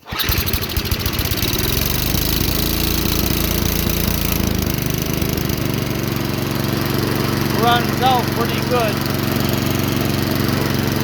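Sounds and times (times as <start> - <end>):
small engine starting and running: 0.0 - 11.0.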